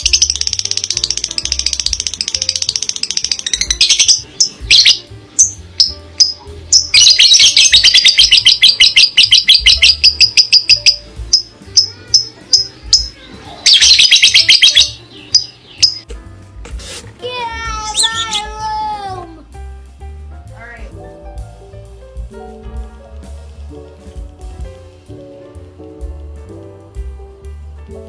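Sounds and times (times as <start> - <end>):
parrot chirping: 0.0 - 16.1, 17.9 - 18.5.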